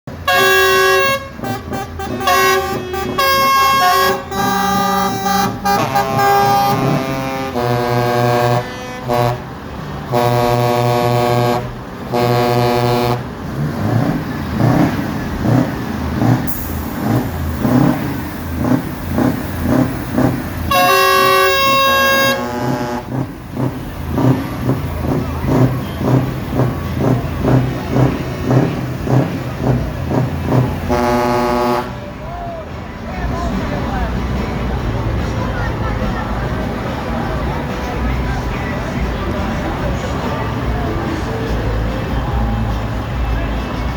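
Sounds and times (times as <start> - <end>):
truck air horns blasting: 0.1 - 32.2
low rhythmic pulsing: 16.1 - 31.9.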